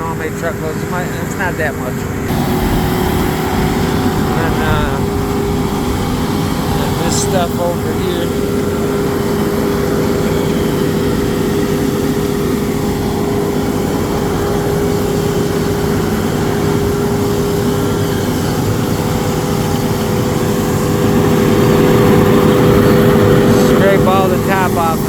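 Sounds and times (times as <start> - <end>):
heavy machinery engine running: 0.0 - 25.0.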